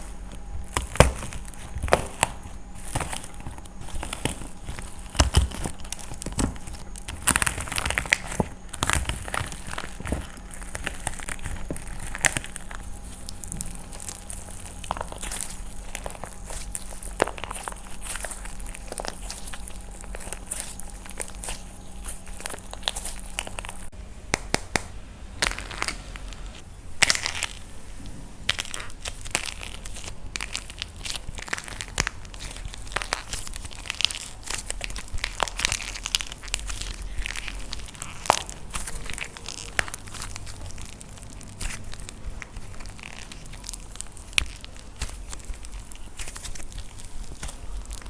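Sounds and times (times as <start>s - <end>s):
dried clay crushed by hand: 0.0s - 48.0s.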